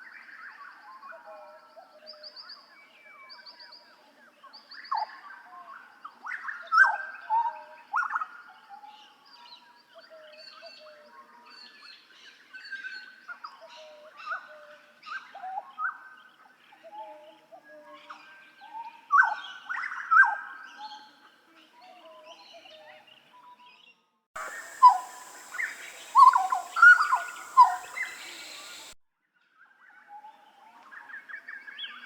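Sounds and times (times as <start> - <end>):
bird singing fluting whistles: 24.4 - 29.0
trilled bird chirps: 24.4 - 29.0.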